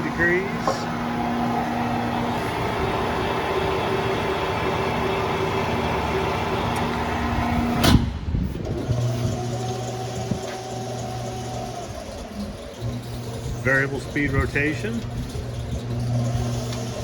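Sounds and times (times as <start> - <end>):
low motor hum: 0.0 - 17.0
motor and gearbox hum: 0.0 - 17.0.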